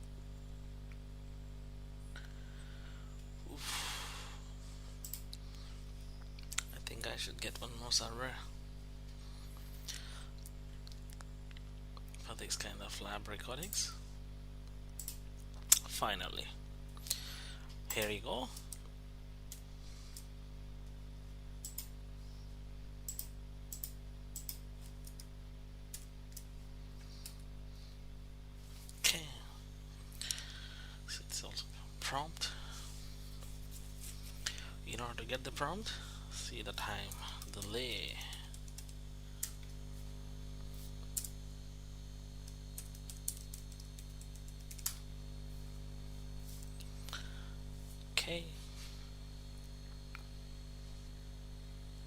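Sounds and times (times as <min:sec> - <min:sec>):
low electrical hum: 0:00.0 - 0:52.0
computer mouse clicking: 0:05.0 - 0:05.4, 0:15.0 - 0:15.2, 0:21.6 - 0:21.9, 0:23.1 - 0:25.3, 0:42.4 - 0:45.0
computer mouse clicks: 0:05.0 - 0:05.4, 0:15.0 - 0:15.8, 0:21.6 - 0:21.9, 0:23.1 - 0:25.3.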